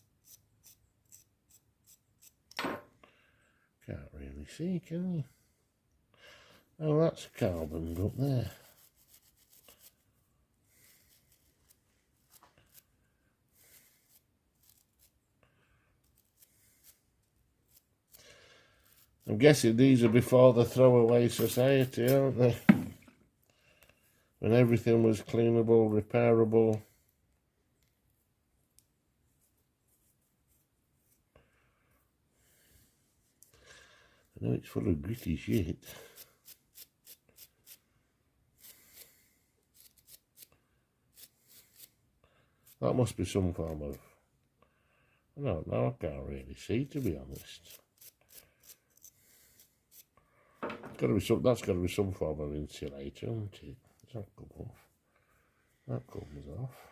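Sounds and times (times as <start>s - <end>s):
brush scrubbing metal: 7.2s - 10.0s, 18.8s - 22.4s
small brush scrubbing: 7.2s - 15.3s, 16.0s - 22.7s, 29.2s - 31.3s, 34.8s - 37.8s, 38.6s - 40.5s, 41.1s - 42.0s, 46.8s - 50.2s.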